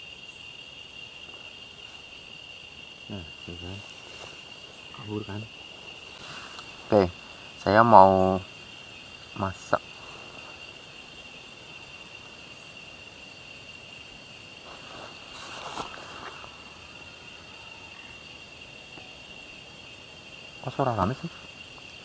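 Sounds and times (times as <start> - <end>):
night insects chorus: 0.0 - 22.0
brief rustle: 14.6 - 16.5.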